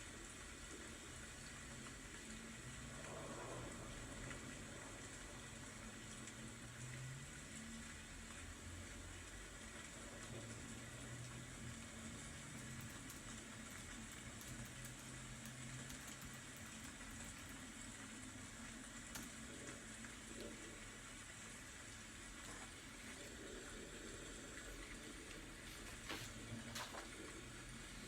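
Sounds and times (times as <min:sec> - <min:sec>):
faint rain hiss: 0:00.0 - 0:28.0.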